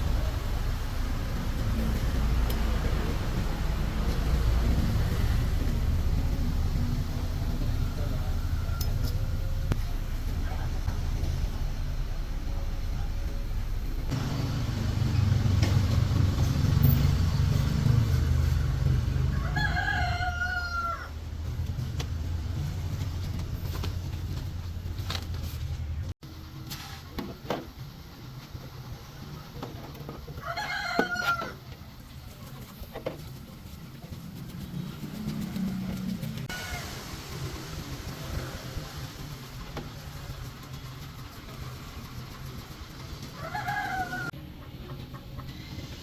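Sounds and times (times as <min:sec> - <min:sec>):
low steady rumble: 0:00.0 - 0:26.6
rooster crowing: 0:07.6 - 0:09.4, 0:19.2 - 0:21.2, 0:30.4 - 0:31.6, 0:43.4 - 0:44.4.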